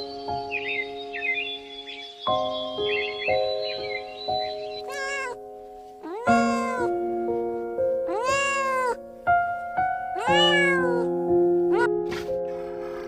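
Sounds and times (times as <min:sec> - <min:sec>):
background music of held notes: 0:00.0 - 0:13.0
cat meowing: 0:04.8 - 0:05.4, 0:06.0 - 0:07.0, 0:08.1 - 0:09.0, 0:10.1 - 0:12.0.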